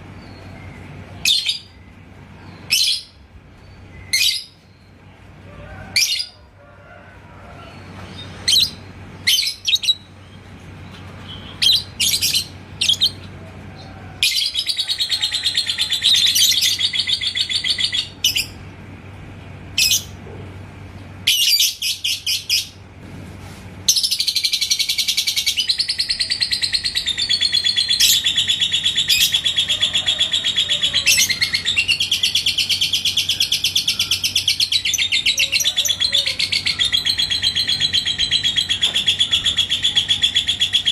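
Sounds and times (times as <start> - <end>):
bird chattering trills: 8.1 - 13.4, 14.2 - 18.7, 23.9 - 40.9
bird chirps: 23.9 - 40.9.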